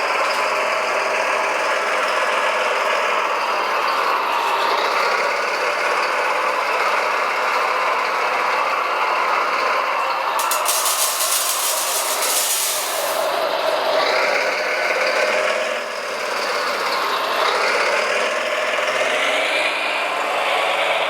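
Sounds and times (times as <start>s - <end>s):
hiss: 10.4s - 13.4s.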